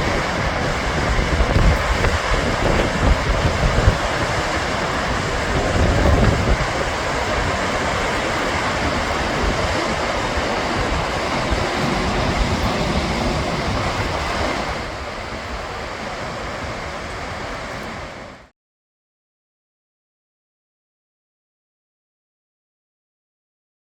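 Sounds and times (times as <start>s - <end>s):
waterfall roaring: 0.0s - 18.5s.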